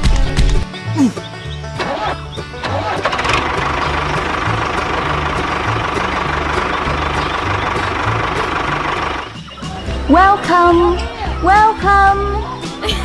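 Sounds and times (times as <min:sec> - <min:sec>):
low bass notes: 0:00.0 - 0:13.0
vehicle engine running: 0:02.1 - 0:11.0.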